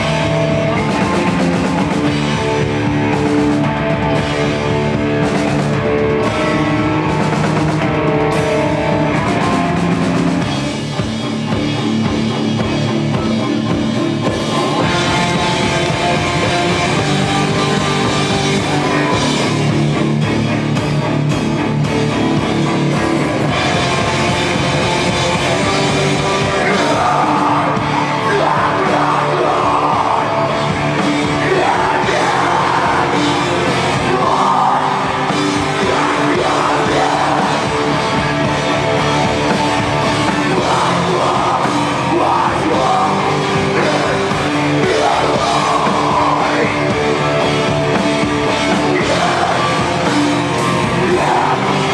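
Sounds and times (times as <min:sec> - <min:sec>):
rock band playing live: 0:00.0 - 0:51.9
person singing: 0:24.4 - 0:51.9.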